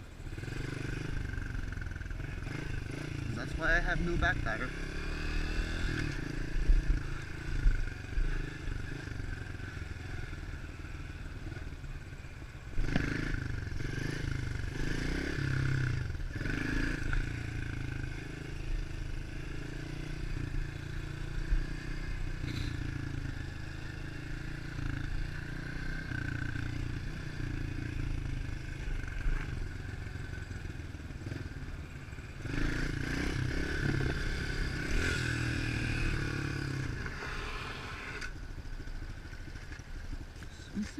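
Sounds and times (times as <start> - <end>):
motorbike engine running: 0.2 - 40.9.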